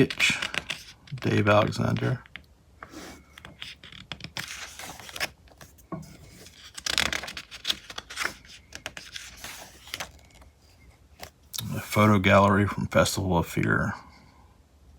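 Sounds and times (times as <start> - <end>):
magazine pages rustling: 0.0 - 2.2, 2.9 - 11.8.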